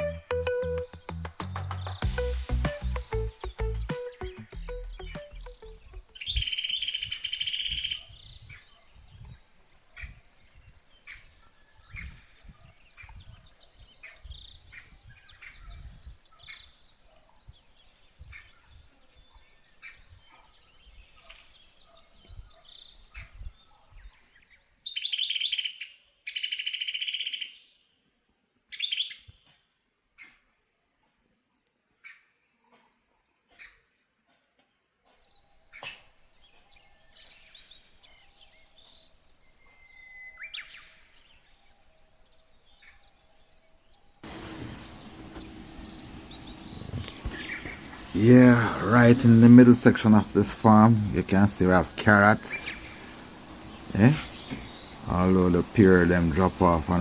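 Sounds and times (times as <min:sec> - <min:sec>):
bird trilling: 0:02.9 - 0:08.2, 0:44.3 - 0:57.0.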